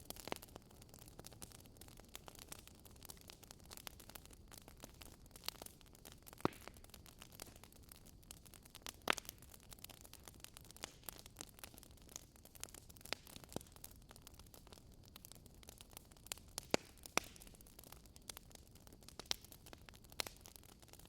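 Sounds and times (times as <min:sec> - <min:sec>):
fireplace fire crackling: 0:00.0 - 0:21.0.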